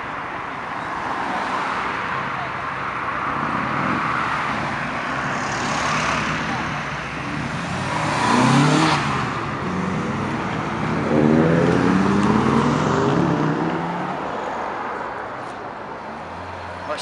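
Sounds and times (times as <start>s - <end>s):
car accelerating hard: 3.2s - 14.4s.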